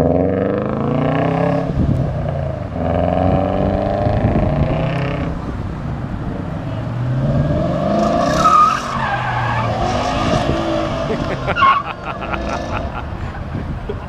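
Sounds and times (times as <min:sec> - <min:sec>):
car engine revving: 0:00.0 - 0:13.2
tires squealing: 0:06.4 - 0:13.7.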